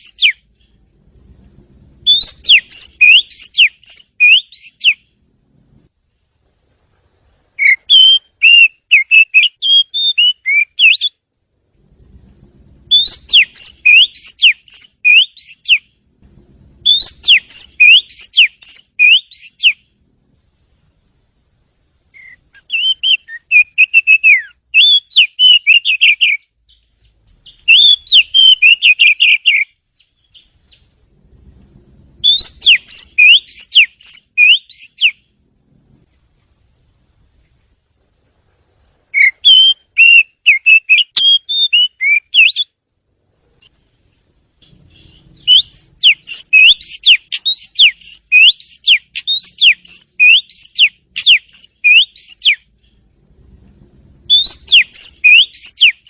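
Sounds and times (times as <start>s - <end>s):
bird singing whistled notes: 0.0s - 0.8s, 2.0s - 5.2s, 7.6s - 11.2s, 12.8s - 16.0s, 16.8s - 19.9s, 22.1s - 31.0s, 32.2s - 35.4s, 39.1s - 42.8s, 44.6s - 53.0s, 54.3s - 56.0s.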